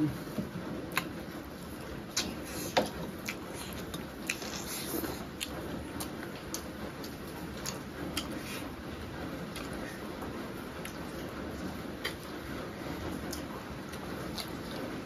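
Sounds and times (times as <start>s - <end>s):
close chewing and biting: 2.1s - 8.6s, 13.3s - 15.0s.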